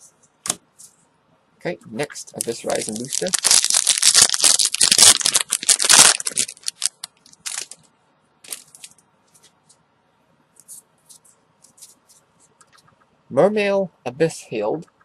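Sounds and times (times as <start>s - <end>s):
trading cards rustling: 2.2s - 7.8s, 8.5s - 9.6s
foil wrapper crinkling: 2.3s - 7.8s, 8.5s - 9.0s.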